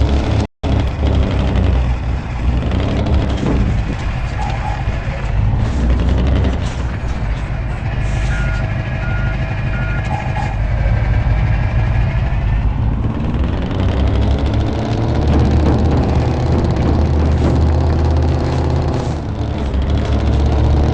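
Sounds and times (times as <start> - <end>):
heavy truck engine revving: 0.0 - 20.9
reversing alarm beeps: 8.2 - 10.6.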